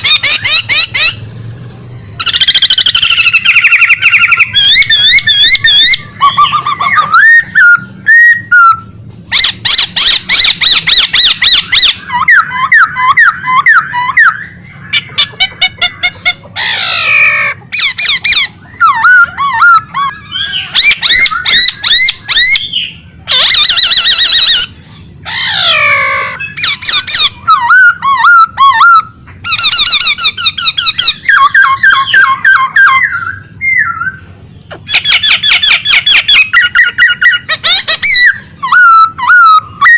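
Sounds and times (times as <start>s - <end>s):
songbird singing trills: 0.0s - 39.9s.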